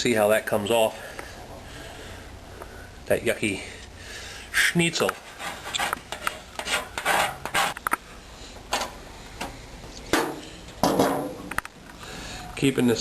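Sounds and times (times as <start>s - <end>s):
hand rubbing and scraping metal: 4.8s - 8.1s.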